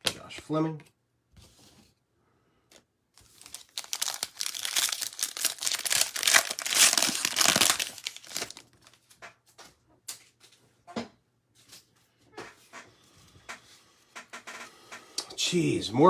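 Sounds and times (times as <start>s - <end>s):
plastic wrapper tearing and crinkling: 3.2s - 9.0s.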